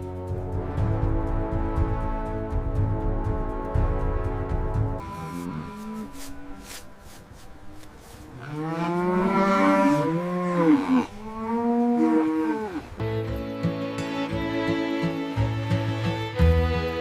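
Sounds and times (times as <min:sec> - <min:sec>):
cattle mooing: 0:05.0 - 0:06.8, 0:08.3 - 0:12.9.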